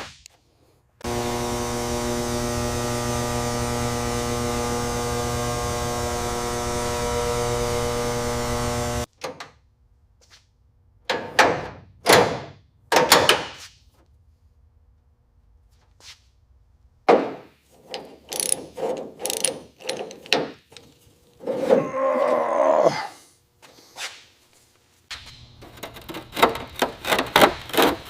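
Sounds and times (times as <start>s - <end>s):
metal tools clacking and clunking: 17.8s - 21.8s.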